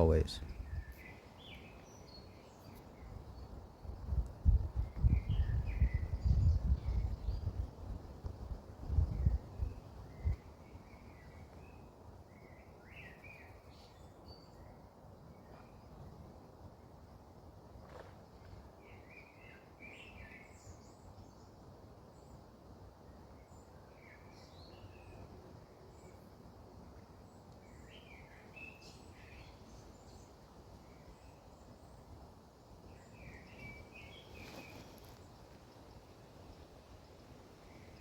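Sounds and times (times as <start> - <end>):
small birds chirping: 0.0 - 7.7, 8.8 - 16.0, 27.2 - 38.0
faint outdoor hum: 0.0 - 38.0.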